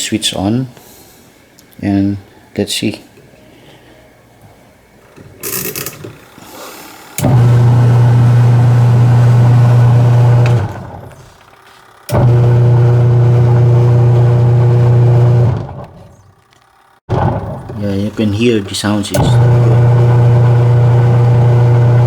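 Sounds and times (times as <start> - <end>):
washing machine motor humming: 5.1 - 16.5, 17.1 - 22.0.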